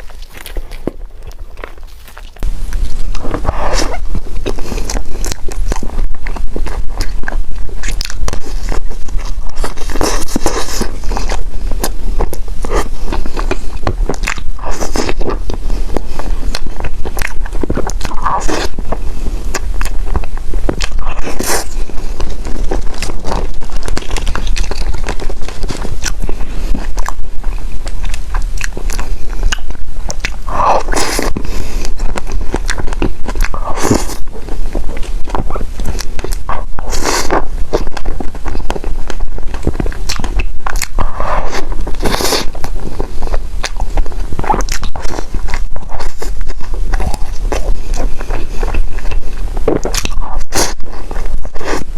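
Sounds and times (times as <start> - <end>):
low hum: 0.0 - 51.9
person biting and chewing: 0.0 - 51.9.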